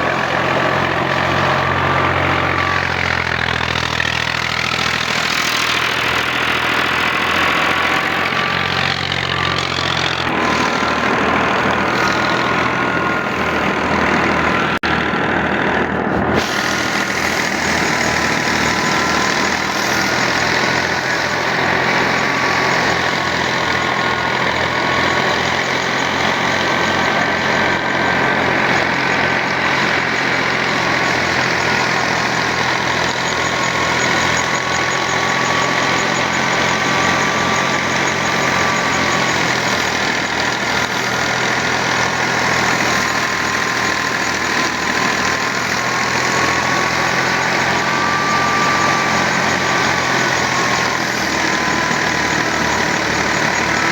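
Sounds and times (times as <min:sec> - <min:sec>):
threshing machinery whine: 0:00.0 - 0:53.9
tractor diesel engine running: 0:00.0 - 0:53.9.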